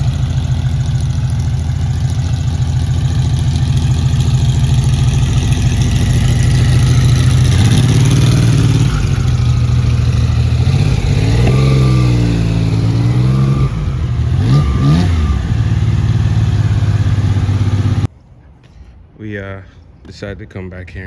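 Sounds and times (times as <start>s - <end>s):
car engine idling and revving: 0.0s - 18.1s.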